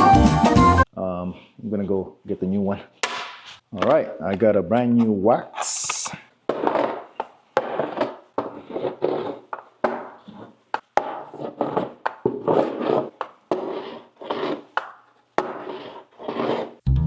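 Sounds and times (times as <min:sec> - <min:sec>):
wax scraping on snowboard: 0:05.6 - 0:16.8.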